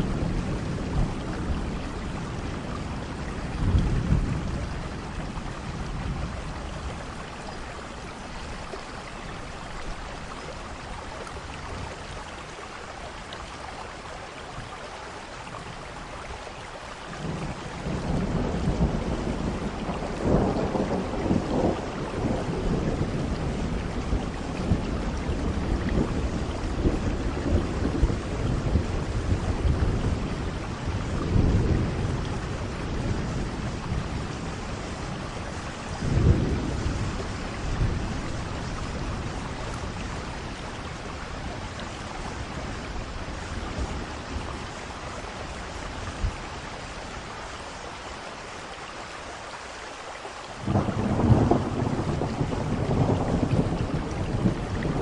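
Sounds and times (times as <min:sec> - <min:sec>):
thunder rumbling: 0:00.0 - 0:09.5, 0:17.2 - 0:46.5, 0:50.6 - 0:55.0
steady rain falling: 0:00.0 - 0:55.0.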